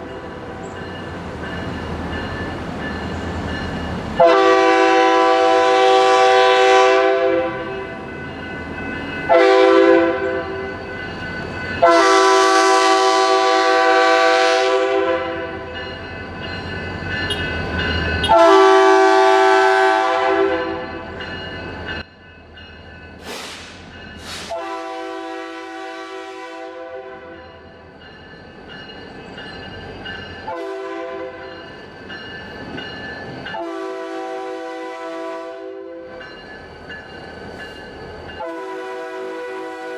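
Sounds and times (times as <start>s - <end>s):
locomotive air horn blasts: 4.2s - 7.8s, 9.3s - 10.7s, 11.8s - 15.7s, 18.2s - 21.0s, 24.3s - 27.4s, 30.5s - 31.4s, 33.6s - 36.0s, 38.4s - 39.9s.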